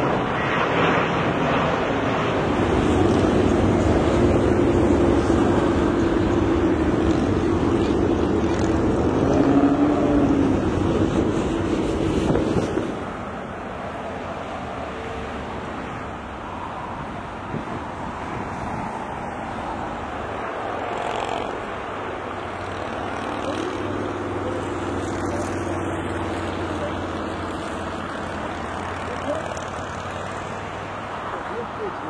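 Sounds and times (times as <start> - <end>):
wind noise: 0.0 - 13.6, 15.7 - 26.6
vehicle engine rumble: 0.9 - 32.0.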